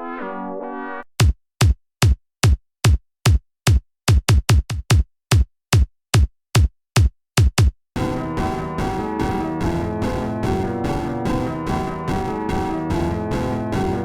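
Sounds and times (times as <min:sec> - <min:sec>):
held synth brass chord: 0:00.0 - 0:01.0, 0:08.0 - 0:14.0.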